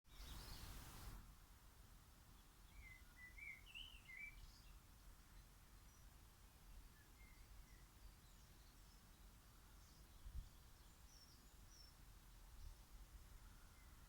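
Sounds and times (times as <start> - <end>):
high chirping birdsong: 0.1 - 0.8.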